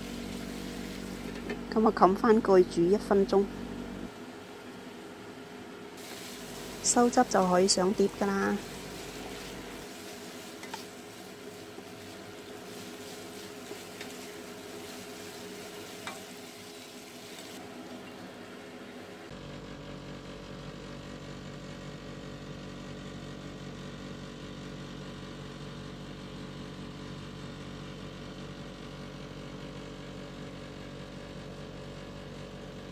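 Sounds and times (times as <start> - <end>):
chicken sizzling in a wok: 0.0 - 1.7, 6.0 - 19.0
steady low hum: 0.0 - 20.1.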